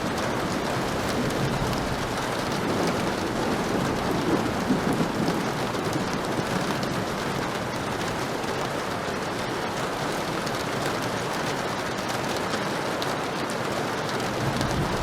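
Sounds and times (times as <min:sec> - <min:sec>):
thunder rumble: 0:00.0 - 0:07.1, 0:14.3 - 0:15.0
heavy rain falling: 0:00.0 - 0:15.0.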